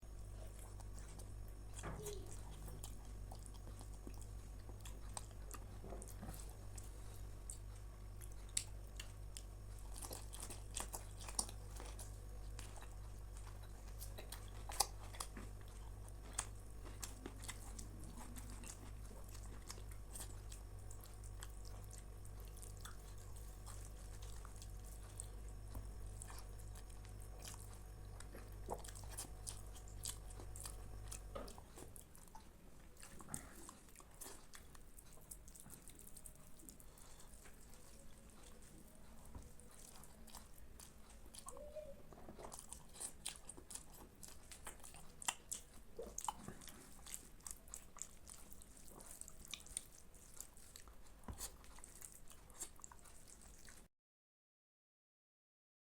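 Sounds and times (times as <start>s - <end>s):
chewing and mouth sounds: 0.0s - 53.9s
low steady hum: 0.0s - 53.9s.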